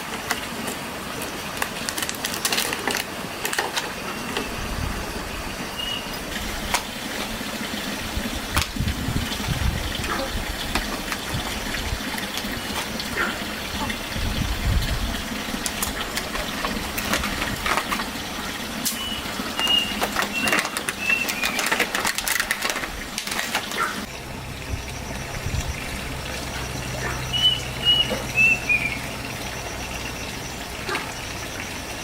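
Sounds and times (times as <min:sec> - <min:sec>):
bird calling falling notes: 0:18.9 - 0:21.9, 0:24.1 - 0:29.3
low steady hum: 0:24.1 - 0:32.0.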